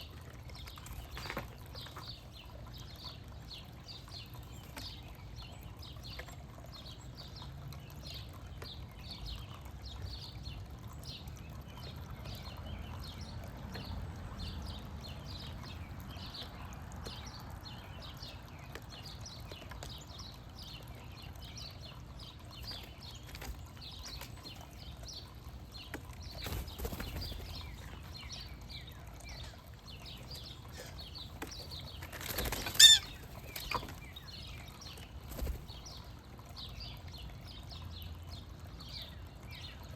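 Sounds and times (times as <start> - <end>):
small bird chirping: 21.6 - 36.0
loud harsh bird call: 32.7 - 33.2.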